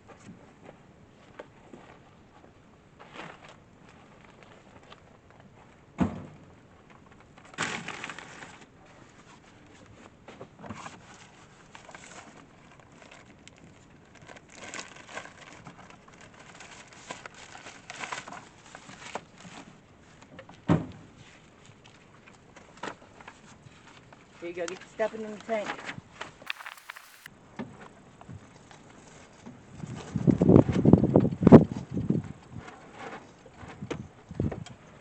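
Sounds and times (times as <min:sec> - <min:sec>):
camp gear rustling and crinkling: 0:26.5 - 0:27.3.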